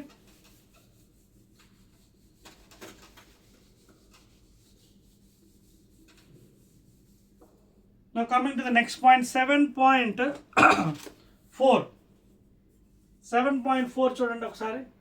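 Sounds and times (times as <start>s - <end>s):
faint rubbing sounds: 0.0s - 9.6s, 11.3s - 15.0s.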